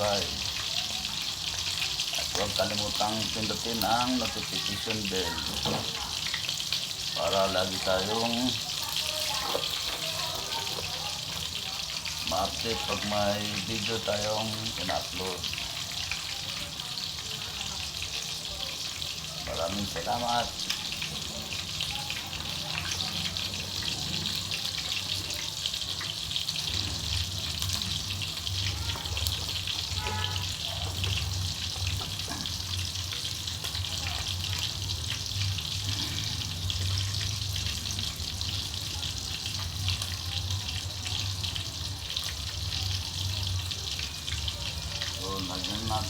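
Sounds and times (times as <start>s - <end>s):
chicken sizzling in a pan: 0.0s - 46.0s
oil popping: 25.8s - 37.3s.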